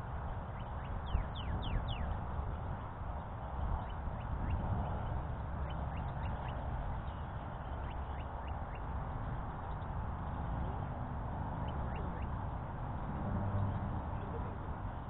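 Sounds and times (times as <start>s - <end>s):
birds chirping: 0.6s - 2.2s, 11.6s - 12.4s.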